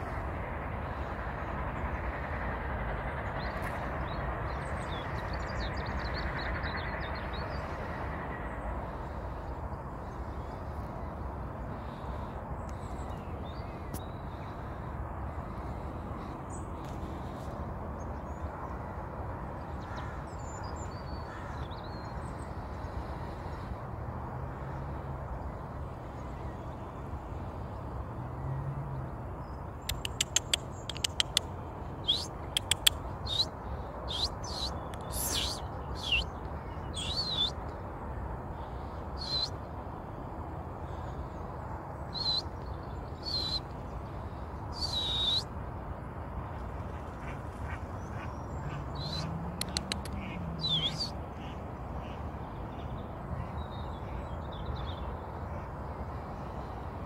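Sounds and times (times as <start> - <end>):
quick clicks: 29.9 - 31.5, 32.1 - 33.1, 49.6 - 50.2
bird giving high calls: 34.1 - 36.3, 36.9 - 37.5, 49.0 - 51.1.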